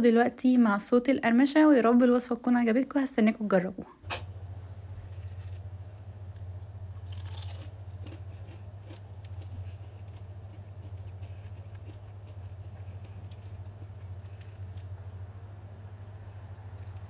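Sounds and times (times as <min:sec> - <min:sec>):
steady low hum: 0:00.0 - 0:17.0
crunchy chewing: 0:05.0 - 0:17.0.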